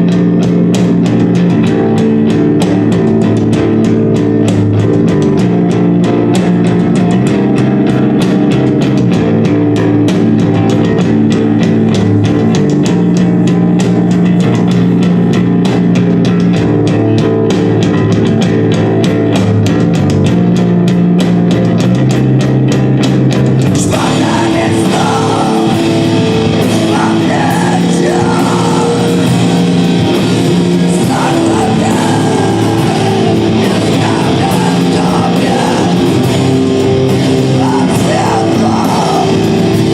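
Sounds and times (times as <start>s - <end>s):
rock band playing: 0.0s - 39.9s
person singing: 23.6s - 39.9s.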